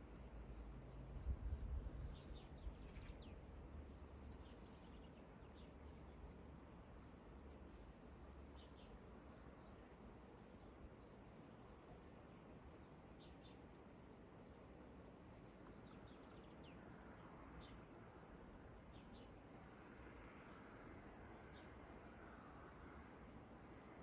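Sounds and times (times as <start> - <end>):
high-pitched insect trill: 0.0 - 24.0.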